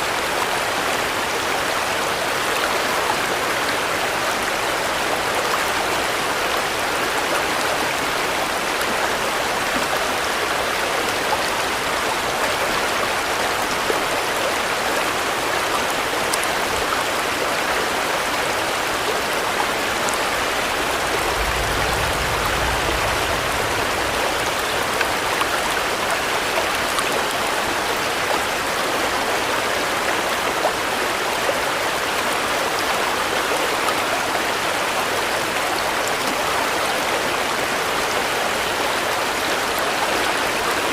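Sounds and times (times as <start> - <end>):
heavy rain falling: 0.0 - 40.9
low rumble: 19.8 - 26.7.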